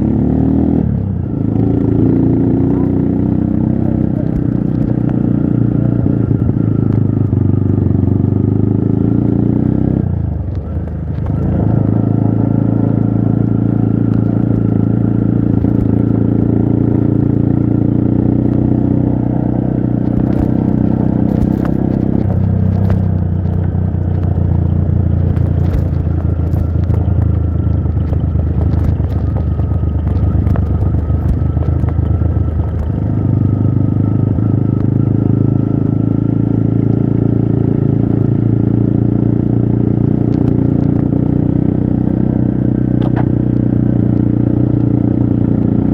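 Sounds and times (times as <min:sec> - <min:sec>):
motorcycle engine under load: 0:00.0 - 0:45.9
clicks and clatter: 0:20.0 - 0:33.5.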